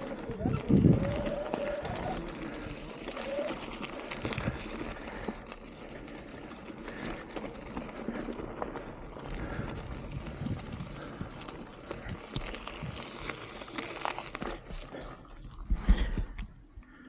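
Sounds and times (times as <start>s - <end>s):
bike tyres on rough trail: 0.0s - 17.0s
bike clicks and knocks: 11.4s - 14.9s.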